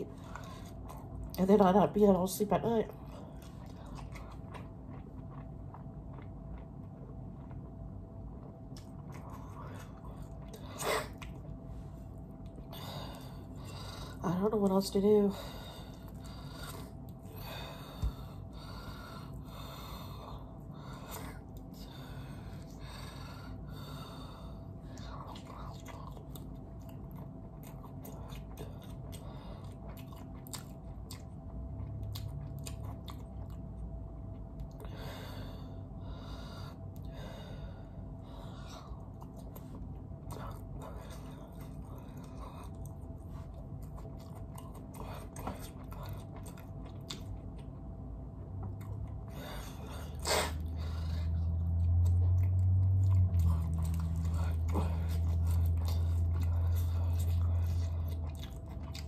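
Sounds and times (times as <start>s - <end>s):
chewing and mouth clicks: 0.0s - 1.6s, 2.9s - 14.8s, 24.8s - 34.9s, 38.9s - 59.0s
low rumble: 0.0s - 59.0s.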